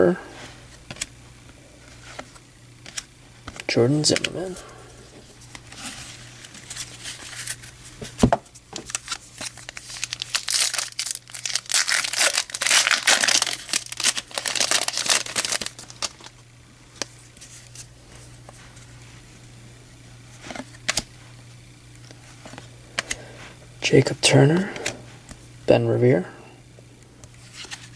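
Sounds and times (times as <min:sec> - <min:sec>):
foil wrapper tearing and crinkling: 0:08.8 - 0:16.4.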